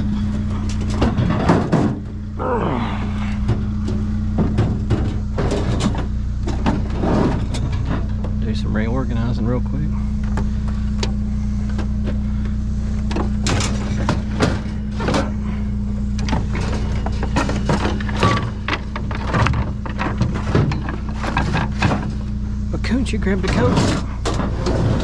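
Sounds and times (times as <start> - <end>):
vehicle engine idling: 0.0 - 25.0
items knocking and clattering: 0.6 - 2.1, 3.4 - 8.4, 13.1 - 15.4, 16.2 - 22.3.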